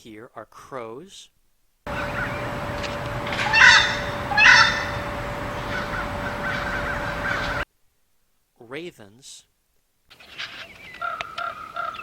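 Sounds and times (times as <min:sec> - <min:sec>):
crow cawing: 0:01.9 - 0:07.6.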